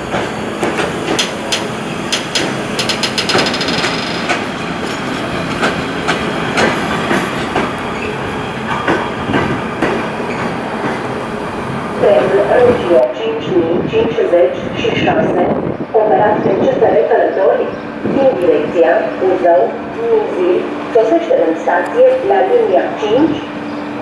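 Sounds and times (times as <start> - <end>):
train wheels clattering: 0.0 - 11.2.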